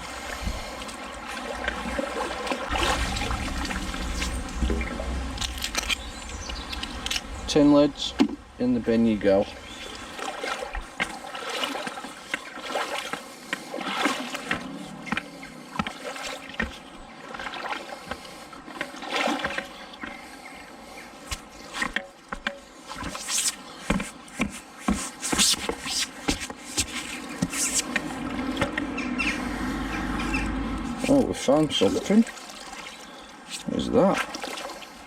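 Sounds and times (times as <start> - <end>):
person wading through water: 0.0 - 35.0
magnet scraping and clicking riverbed: 3.0 - 8.4, 21.3 - 29.4.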